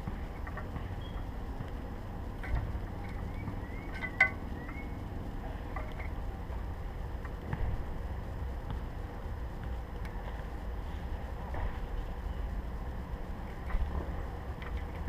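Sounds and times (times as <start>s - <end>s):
low wind rumble: 0.0s - 15.0s
bird chirps: 0.3s - 1.3s, 3.0s - 5.0s
dull thumps: 7.3s - 7.9s.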